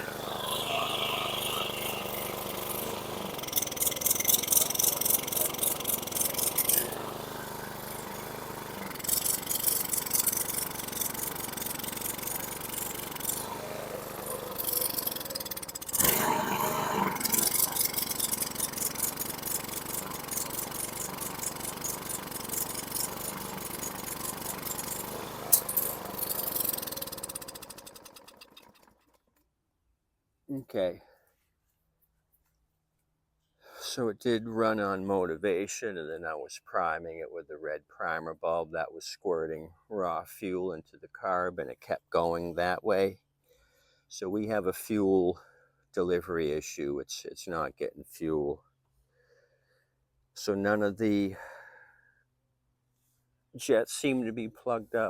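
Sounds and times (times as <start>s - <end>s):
lawn mower engine running rough: 0.0s - 29.2s.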